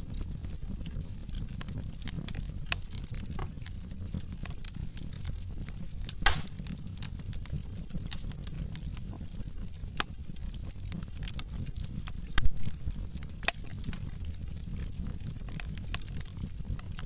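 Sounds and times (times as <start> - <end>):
fire burning with crackles: 0.0 - 17.0
loud pop from fire: 6.2 - 6.8.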